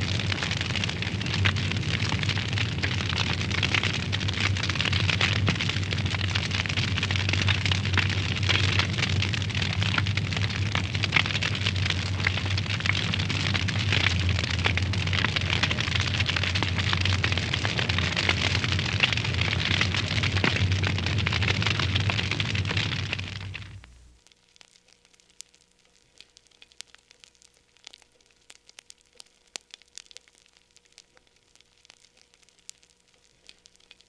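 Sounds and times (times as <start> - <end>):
low rumble: 0.0 - 24.2
wood fire crackling and popping: 0.0 - 34.0.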